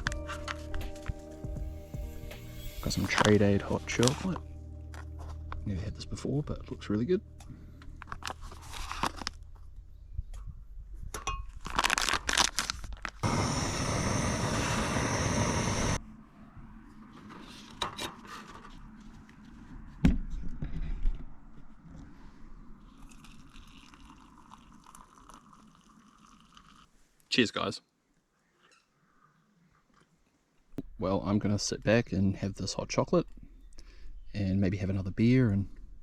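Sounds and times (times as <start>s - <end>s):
packet crinkling and tearing: 7.9s - 9.7s, 11.5s - 13.2s
powder pouring: 23.0s - 26.9s.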